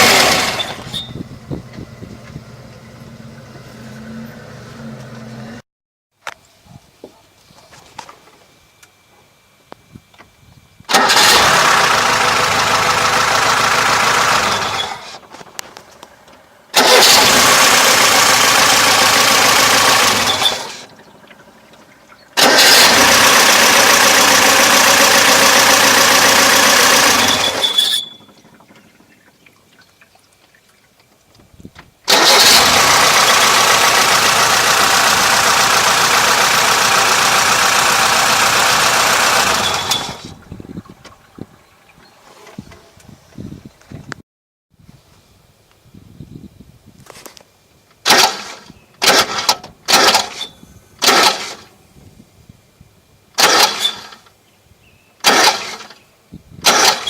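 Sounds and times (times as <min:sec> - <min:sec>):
car engine starting and stopping: 0:00.0 - 0:05.6, 0:10.9 - 0:29.2, 0:32.1 - 0:41.2, 0:48.0 - 0:51.7, 0:53.4 - 0:54.3, 0:55.2 - 0:56.0, 0:56.6 - 0:57.0
high squeak: 0:00.5 - 0:01.3, 0:14.5 - 0:15.2, 0:20.2 - 0:20.8, 0:27.1 - 0:28.5, 0:39.5 - 0:40.3.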